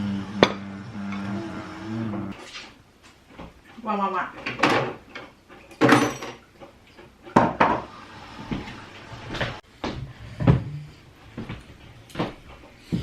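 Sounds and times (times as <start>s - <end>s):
knocks and clatters of household objects: 0.3s - 1.5s, 3.3s - 10.7s.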